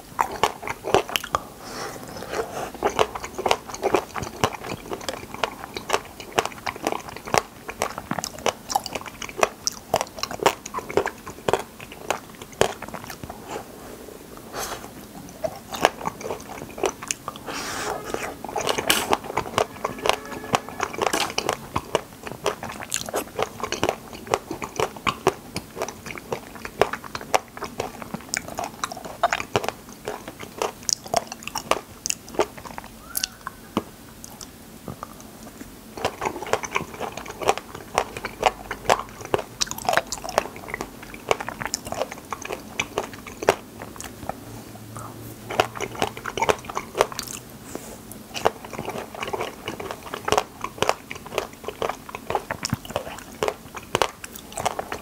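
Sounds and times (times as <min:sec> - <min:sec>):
mouth chewing raspberries: 0:00.0 - 0:55.0.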